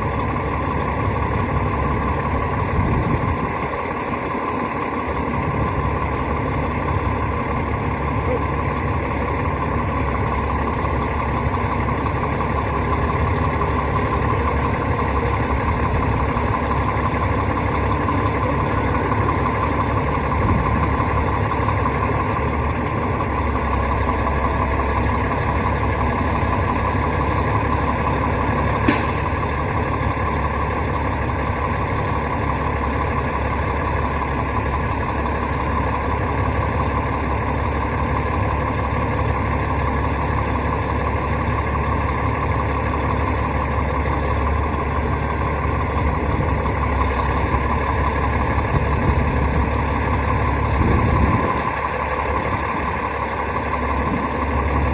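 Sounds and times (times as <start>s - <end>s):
brief hiss: 28.9s - 29.4s.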